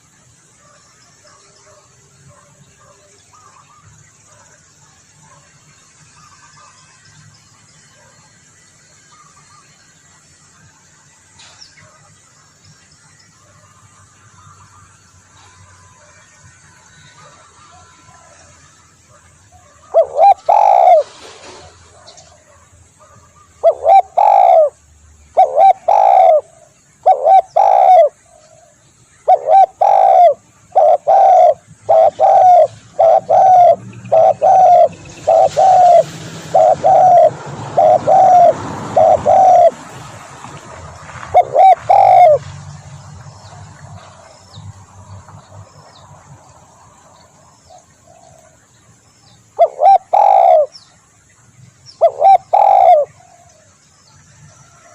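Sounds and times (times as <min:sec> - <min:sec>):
dove cooing: 0:19.6 - 0:22.2, 0:23.6 - 0:39.8, 0:41.2 - 0:42.4, 0:49.6 - 0:50.8, 0:52.0 - 0:53.5.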